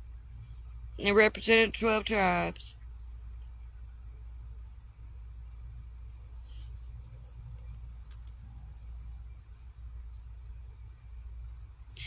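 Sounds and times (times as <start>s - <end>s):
crickets trilling: 0.0s - 12.0s
faint clicks: 7.6s - 8.4s.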